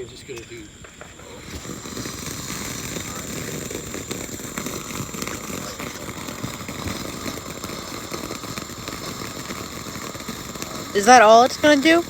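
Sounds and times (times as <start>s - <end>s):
firework fountain hissing and crackling: 0.0s - 12.0s.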